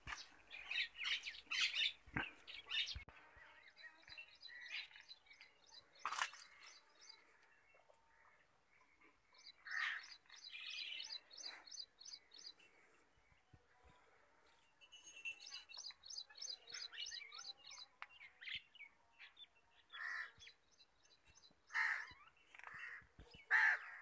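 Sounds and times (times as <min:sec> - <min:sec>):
birds chirping: 0:00.0 - 0:13.6.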